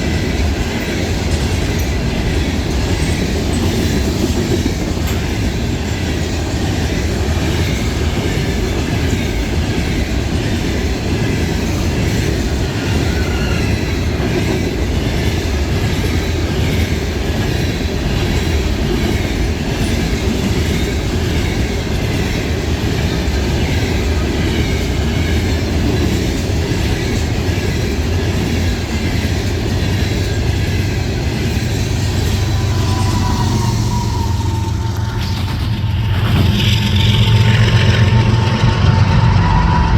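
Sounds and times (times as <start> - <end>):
train wheels clickety-clack: 0.0 - 39.9
faint wheel squeal: 12.8 - 14.0.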